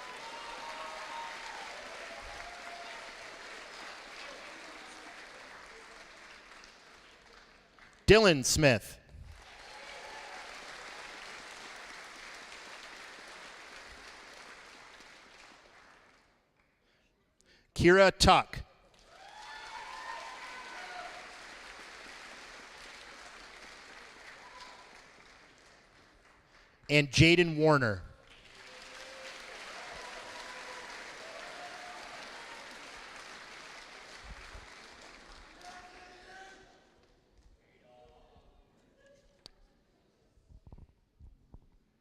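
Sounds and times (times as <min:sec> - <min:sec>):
faint cheers and whistles: 0:00.0 - 0:03.4, 0:19.2 - 0:21.4
audience applause: 0:00.0 - 0:08.0, 0:09.4 - 0:16.2, 0:19.1 - 0:26.4, 0:28.3 - 0:36.5.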